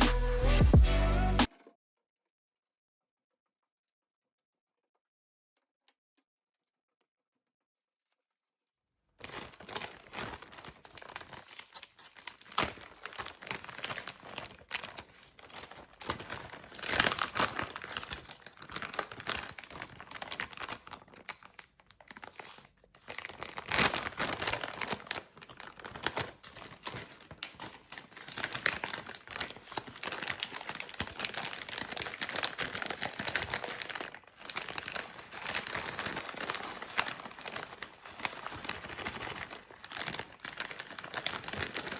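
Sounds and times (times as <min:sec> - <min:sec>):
packaging crinkling and rustling: 0:09.2 - 0:41.9.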